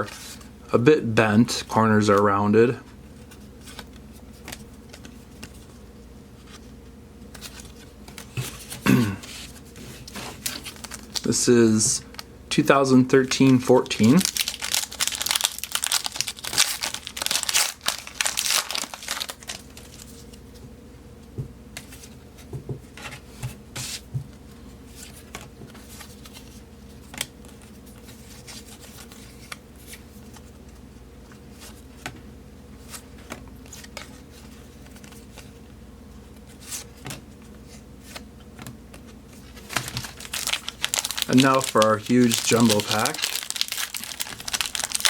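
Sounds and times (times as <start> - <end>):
cards being flipped through: 3.2 - 5.8, 7.3 - 11.3, 13.3 - 20.4, 36.5 - 45.0
card wrapper crinkling and tearing: 10.1 - 11.4, 13.2 - 20.3, 39.4 - 45.0.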